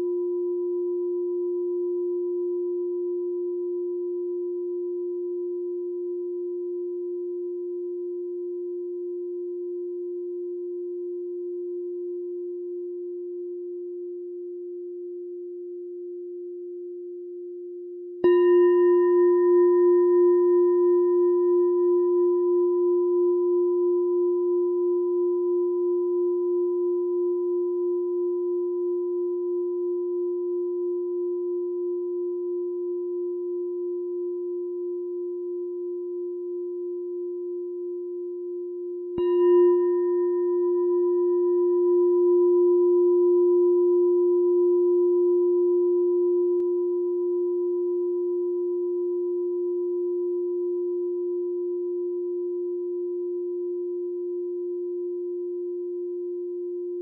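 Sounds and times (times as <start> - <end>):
meditation bell ringing: 18.2 - 32.4, 33.0 - 55.7.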